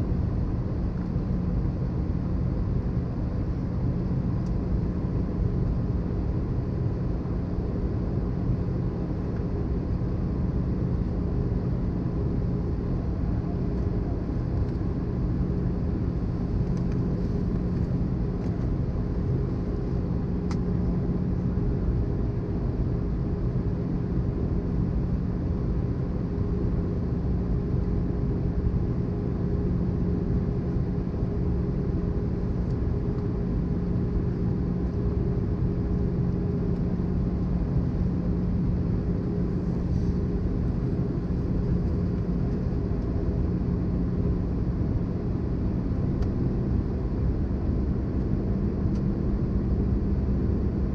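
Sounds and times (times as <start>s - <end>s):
airplane cabin engine rumble: 0.0s - 50.9s
steady low hum: 0.0s - 50.9s.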